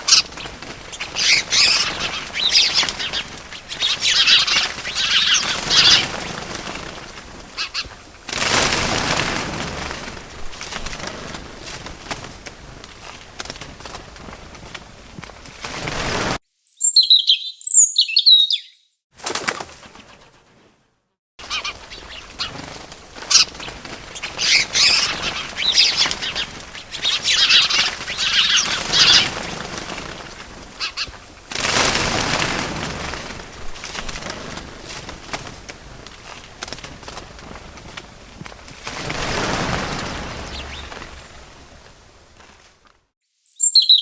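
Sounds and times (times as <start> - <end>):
small birds chirping: 0.0 - 8.7, 16.5 - 19.0, 21.4 - 31.9, 39.0 - 41.8, 43.3 - 44.0
wings flapping: 0.0 - 16.4, 19.2 - 20.8, 21.4 - 43.1.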